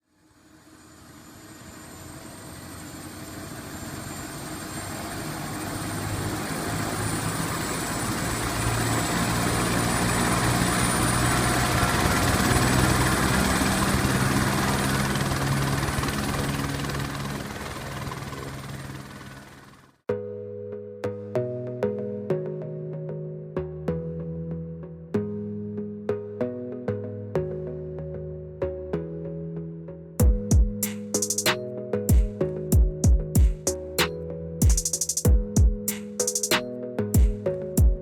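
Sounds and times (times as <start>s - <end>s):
helicopter turbine whine: 0.3s - 19.9s
helicopter rotor beating: 1.0s - 19.9s.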